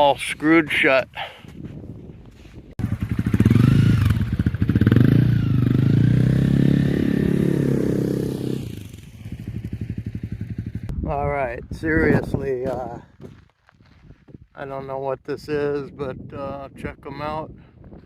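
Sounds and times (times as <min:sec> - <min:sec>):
motorcycle engine running: 0:02.8 - 0:11.0.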